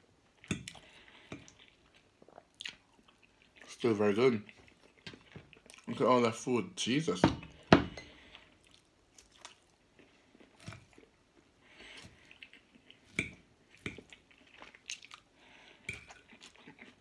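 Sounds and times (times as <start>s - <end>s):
wet chewing: 0.4s - 6.0s, 8.1s - 17.0s.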